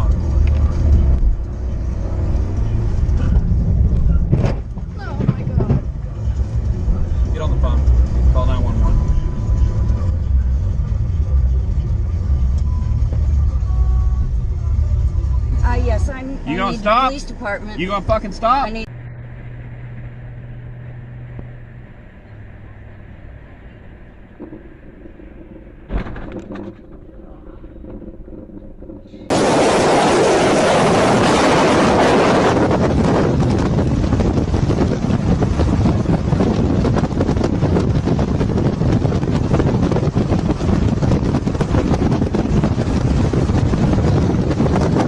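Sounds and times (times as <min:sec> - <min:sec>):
car engine humming: 0:00.0 - 0:45.0
moving vehicle rumble: 0:00.0 - 0:45.0
road noise: 0:00.0 - 0:45.0
wind buffeting microphone: 0:24.3 - 0:45.0
sudden loud bang: 0:24.4 - 0:26.6
short rattling clatter: 0:24.4 - 0:30.3.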